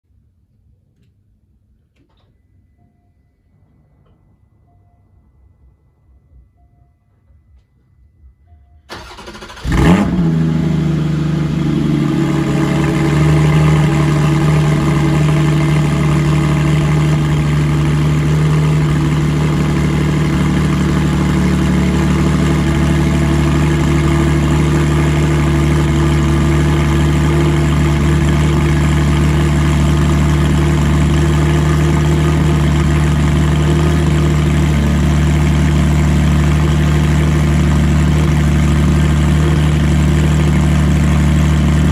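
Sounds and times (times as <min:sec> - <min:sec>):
sports car engine starting and idling: 0:08.9 - 0:41.9.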